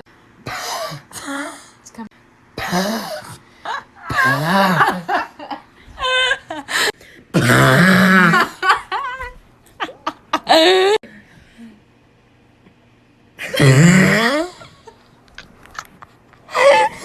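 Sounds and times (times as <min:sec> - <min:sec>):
woman braying laugh: 0:03.6 - 0:06.9, 0:08.2 - 0:11.0.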